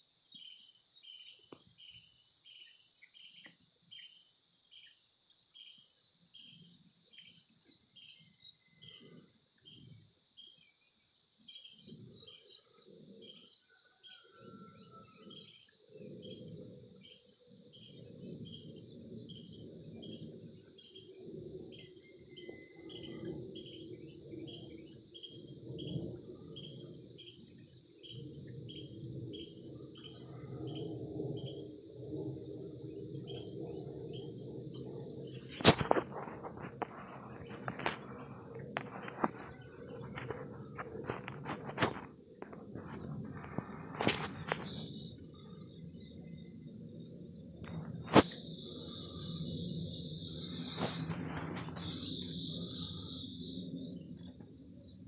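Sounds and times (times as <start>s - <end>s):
high insect drone: 0.0s - 55.0s
low fluttering hum: 0.4s - 55.0s
insects chirping rhythmically: 15.2s - 55.0s.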